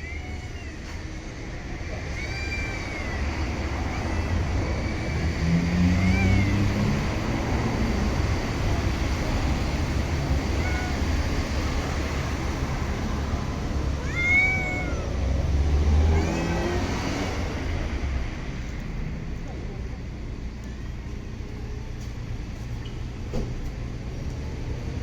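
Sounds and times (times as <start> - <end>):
cat meowing: 0.0 - 1.2, 1.8 - 7.2, 10.0 - 12.0, 13.5 - 17.0.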